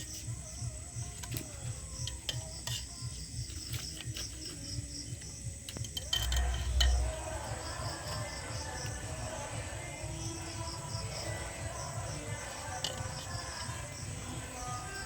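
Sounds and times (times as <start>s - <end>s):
background music: 0.0s - 15.0s
metal utensils clinking on cookware: 1.2s - 4.6s, 5.7s - 9.0s.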